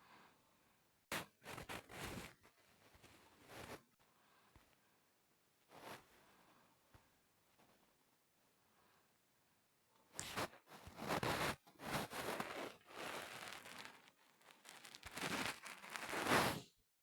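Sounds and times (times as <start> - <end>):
rustling crinkling noise: 1.1 - 3.9, 10.2 - 16.6.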